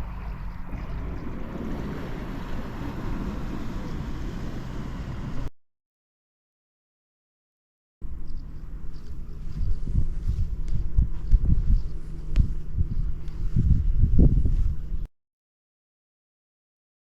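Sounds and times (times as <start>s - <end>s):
diesel engine running: 0.0s - 5.5s
wind buffeting microphone: 0.0s - 5.5s, 8.7s - 15.1s.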